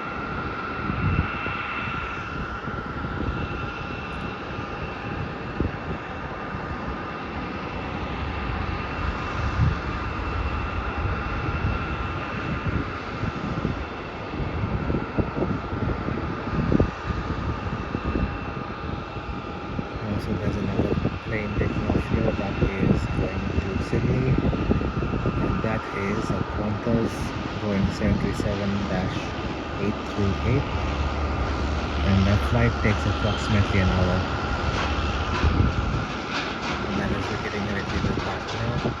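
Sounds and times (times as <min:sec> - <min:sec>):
distant jet engines running: 0:00.0 - 0:39.0.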